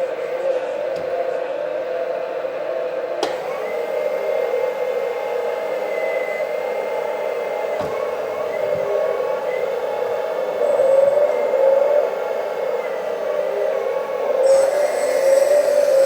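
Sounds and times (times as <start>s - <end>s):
click: 3.2s - 3.4s
thin high whine: 8.4s - 16.0s
toy excavator whirring hum: 9.6s - 16.0s.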